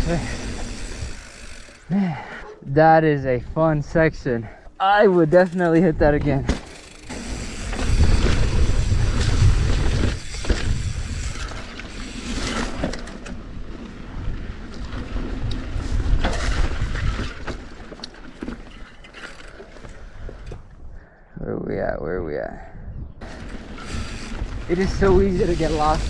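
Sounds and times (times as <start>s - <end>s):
bike tyre rumble: 0.0s - 2.4s, 5.1s - 20.7s, 23.2s - 26.0s
bike knocks and rattles: 5.1s - 11.8s
wind buffeting microphone: 7.2s - 11.7s, 19.8s - 26.0s.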